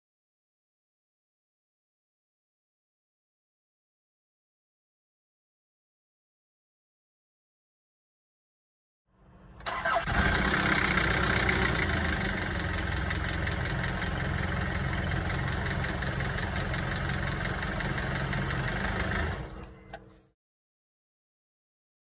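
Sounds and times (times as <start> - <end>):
car engine idling: 9.6 - 20.2.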